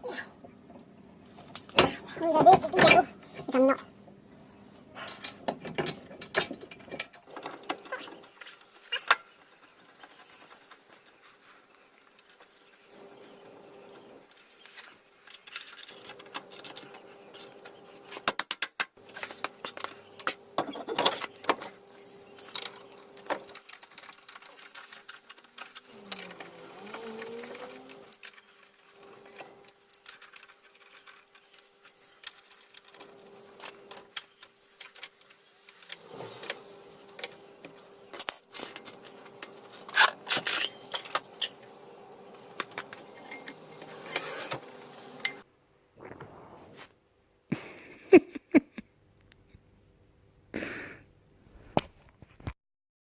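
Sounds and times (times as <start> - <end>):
metal tools clinking: 14.3 - 44.6.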